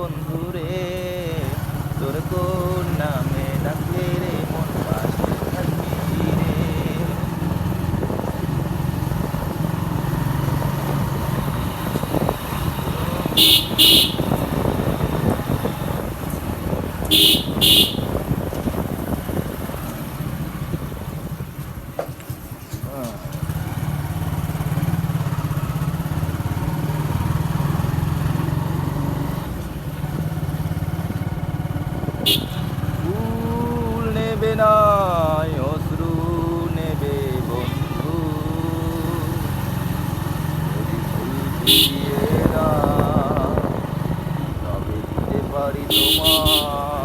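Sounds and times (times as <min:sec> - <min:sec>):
motorcycle engine running: 0:00.0 - 0:47.0
vehicle horn beeping: 0:11.6 - 0:16.2, 0:17.0 - 0:18.4, 0:32.2 - 0:32.9, 0:41.5 - 0:42.6, 0:45.6 - 0:47.0.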